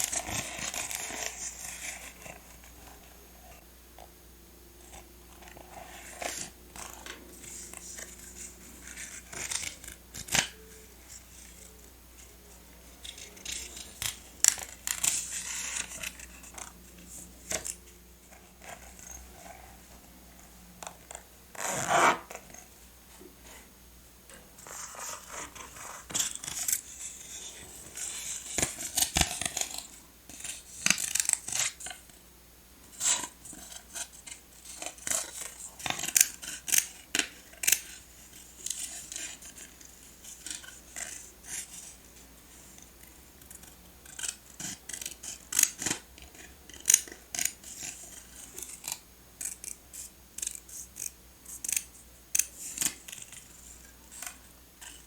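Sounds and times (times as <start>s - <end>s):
scissors snipping paper: 13.0s - 16.7s, 24.7s - 32.0s, 42.6s - 55.0s.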